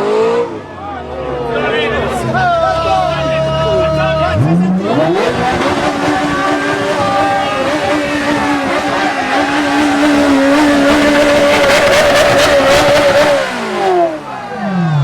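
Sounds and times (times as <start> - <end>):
exhaust crackles: 1.3 - 15.0
sports car engine high revs: 4.2 - 15.0.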